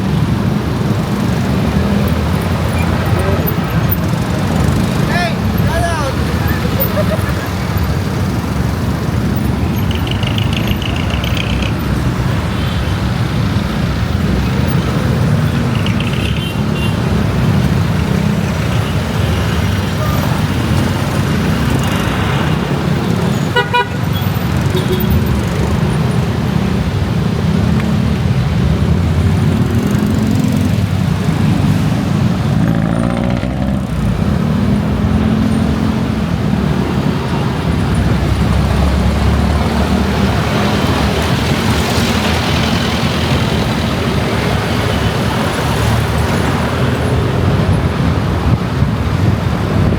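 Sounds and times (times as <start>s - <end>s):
wind and motorcycle engine rumble: 0.0s - 49.9s
vehicle horn toots: 23.6s - 24.2s.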